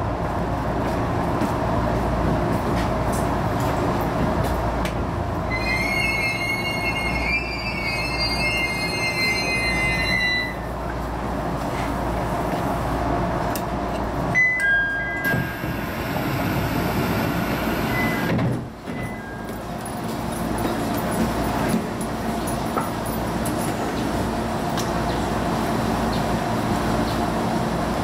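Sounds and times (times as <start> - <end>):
train wheels rumbling on track: 0.0 - 28.0
high wavering wheel squeal: 5.5 - 10.7.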